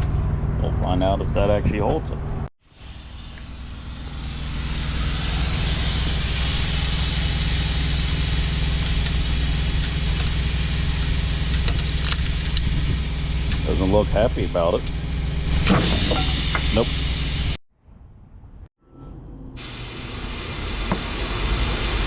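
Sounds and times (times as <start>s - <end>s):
steady hiss: 2.7s - 17.6s
diesel truck engine idling: 3.0s - 15.6s.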